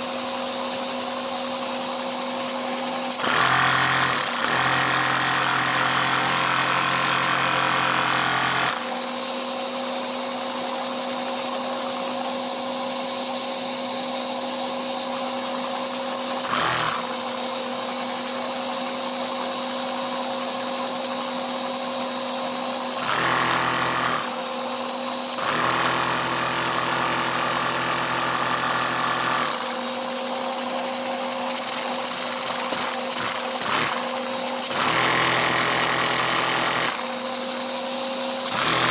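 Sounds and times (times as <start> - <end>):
engine whirring and rattling: 1.2 - 9.1, 16.3 - 17.2, 22.8 - 24.6, 25.2 - 37.6, 38.2 - 38.9.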